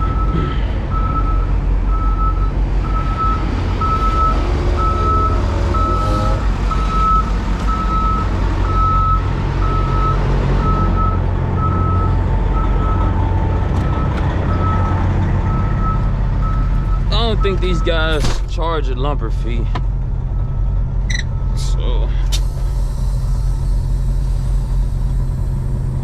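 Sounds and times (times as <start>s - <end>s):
truck backup alarm beeping: 0.0s - 18.2s, 20.3s - 21.8s
diesel truck engine running: 0.0s - 26.0s.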